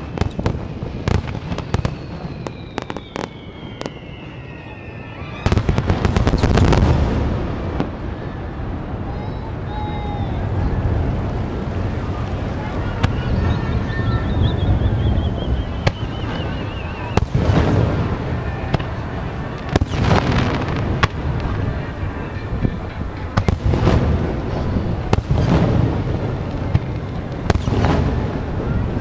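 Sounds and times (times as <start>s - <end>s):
fireworks bursting with bangs: 0.0s - 29.0s
fireworks crackling: 0.0s - 29.0s
whistle falling in pitch: 1.8s - 5.8s, 12.9s - 17.3s.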